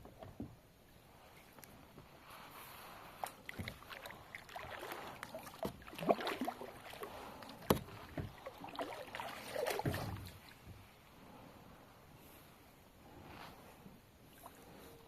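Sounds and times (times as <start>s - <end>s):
paddle splashes: 2.1s - 11.0s
water sloshing: 2.6s - 11.1s
knocks against boat: 7.6s - 8.4s, 9.7s - 10.8s.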